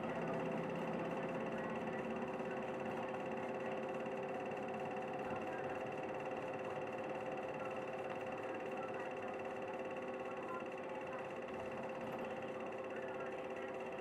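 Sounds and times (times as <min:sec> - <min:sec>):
bus engine drone: 0:00.0 - 0:09.8.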